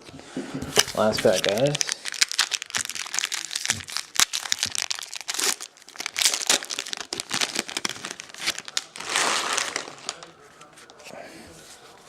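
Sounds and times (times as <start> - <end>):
wrapper tearing and crinkling: 0.8 - 10.3.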